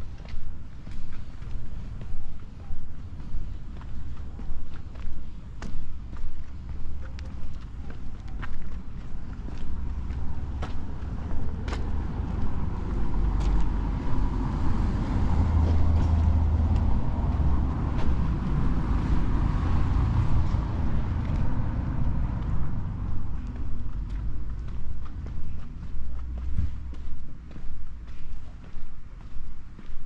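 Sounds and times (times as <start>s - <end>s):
car driving past: 9.7s - 25.1s.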